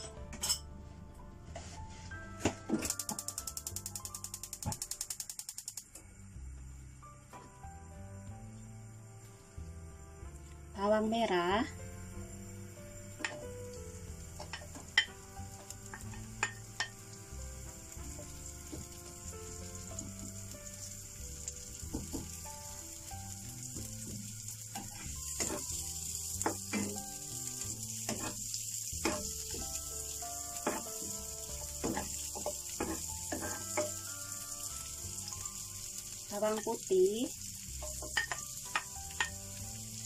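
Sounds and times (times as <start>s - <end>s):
shallots sizzling in oil: 0.8s - 40.0s
spatula scraping and knocking on pan: 14.4s - 17.0s, 18.1s - 19.1s, 21.8s - 22.5s, 23.7s - 27.2s, 28.0s - 29.8s, 30.6s - 34.1s, 37.8s - 39.4s.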